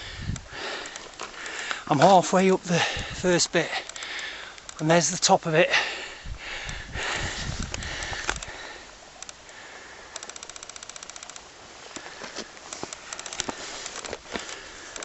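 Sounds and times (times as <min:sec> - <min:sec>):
strong wind buffeting microphone: 0:00.0 - 0:00.7, 0:02.8 - 0:03.3, 0:06.2 - 0:08.6
fast rattle of sharp clicks: 0:00.2 - 0:01.8, 0:03.7 - 0:05.0, 0:07.6 - 0:12.0, 0:12.7 - 0:15.0
scattered clicks and pops: 0:00.2 - 0:01.8, 0:03.7 - 0:05.0, 0:07.5 - 0:15.0.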